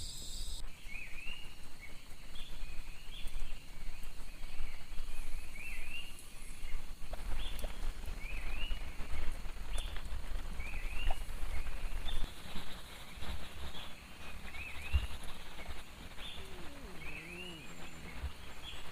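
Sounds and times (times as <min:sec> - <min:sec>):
animal chirping: 0:14.2 - 0:18.9.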